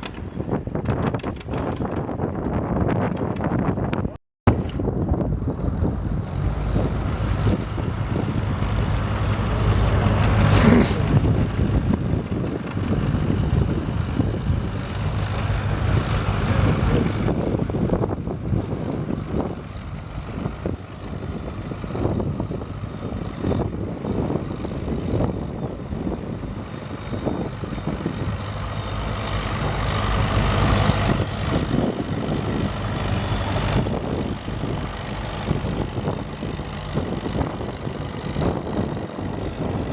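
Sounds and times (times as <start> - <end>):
tractor engine running hard: 4.5 - 39.9.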